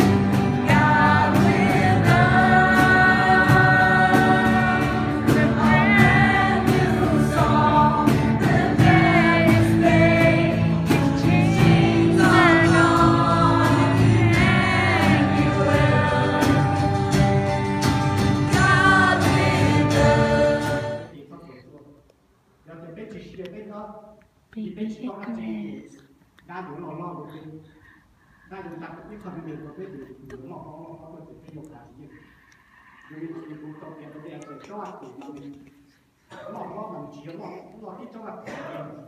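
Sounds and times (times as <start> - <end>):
instrumental backing: 0.0 - 21.1
gospel choir singing: 0.0 - 21.2.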